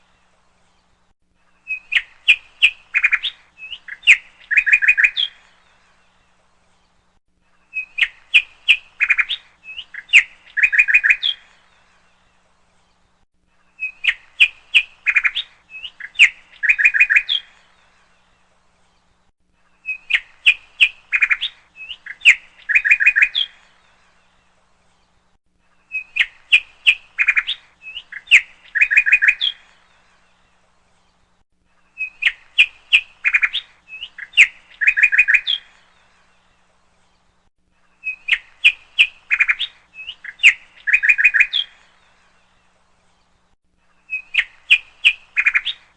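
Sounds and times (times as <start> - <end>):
songbird chirps and trills: 0.0 - 45.9.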